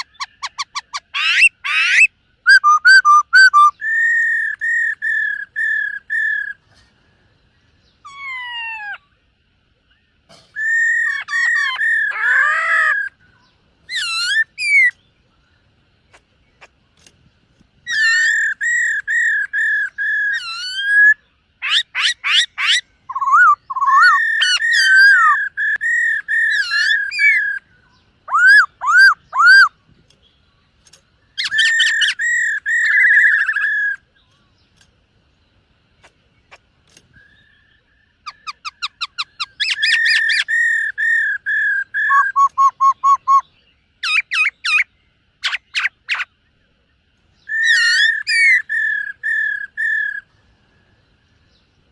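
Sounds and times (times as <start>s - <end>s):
bird singing whistled phrases: 0.0s - 6.6s, 10.6s - 15.1s, 17.9s - 29.8s, 31.4s - 34.0s, 37.1s - 46.3s, 47.4s - 50.3s.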